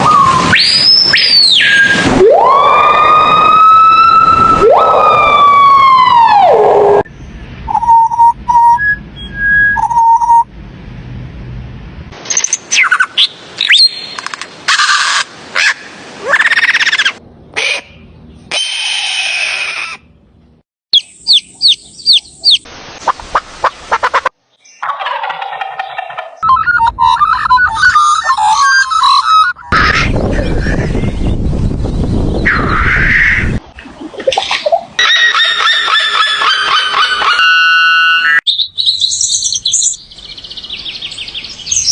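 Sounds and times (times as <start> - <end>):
siren-like bird wail: 0.0 - 7.1, 26.4 - 30.6, 32.4 - 33.6, 35.0 - 38.5
bird whistles chirps and trills: 7.7 - 10.4, 12.3 - 14.2, 21.0 - 22.6, 26.4 - 29.6, 35.0 - 41.9.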